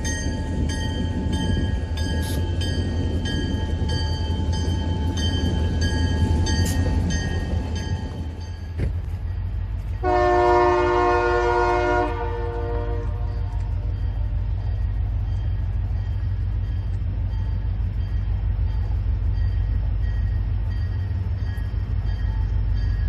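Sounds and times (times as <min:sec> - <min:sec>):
crossing bell ringing: 0:00.0 - 0:23.0
diesel locomotives rumbling: 0:00.0 - 0:23.0
locomotive air horn blast: 0:10.0 - 0:13.8.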